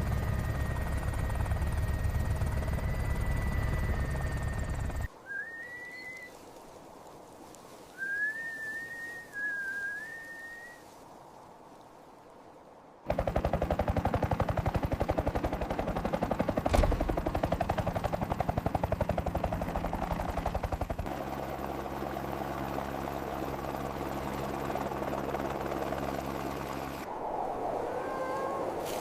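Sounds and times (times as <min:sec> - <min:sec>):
engine hum: 0:00.0 - 0:05.1, 0:13.1 - 0:27.1
helicopter rotor chopping: 0:00.0 - 0:05.1, 0:13.1 - 0:27.1
heavy thump: 0:16.7 - 0:17.5.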